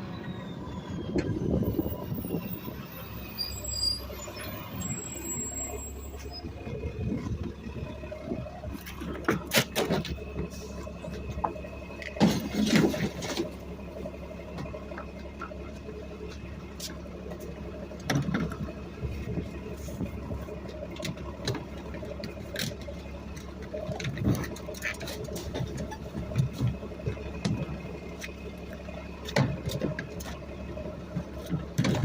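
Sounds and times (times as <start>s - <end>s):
garbage truck engine running: 0.0s - 32.0s
knocks and clatters: 20.9s - 27.8s, 31.1s - 32.0s.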